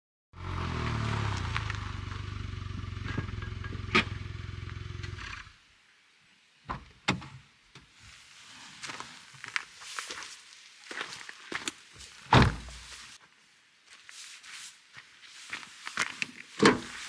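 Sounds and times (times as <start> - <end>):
vehicle engine idling: 0.4 - 5.6.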